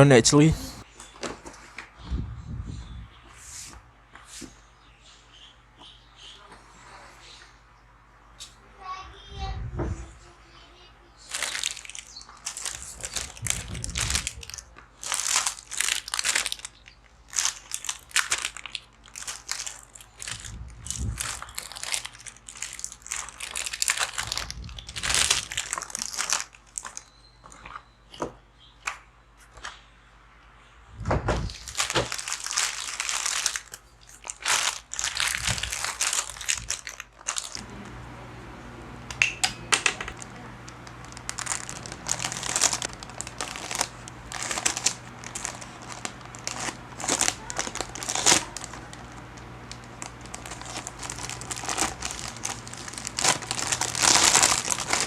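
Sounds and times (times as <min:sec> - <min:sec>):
packaging crinkling and rustling: 0:11.2 - 0:27.8, 0:31.4 - 0:55.0.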